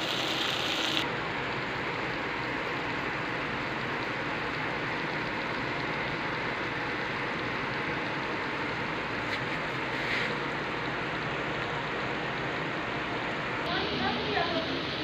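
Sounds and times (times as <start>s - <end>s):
food frying in oil sizzle: 0.0s - 1.1s, 1.8s - 9.2s.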